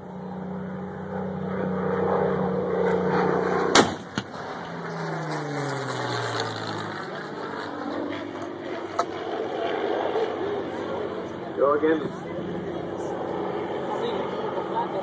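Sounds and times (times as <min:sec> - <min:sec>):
propeller plane droning overhead: 0:00.0 - 0:15.0
gun firing loud shot: 0:03.7 - 0:04.4.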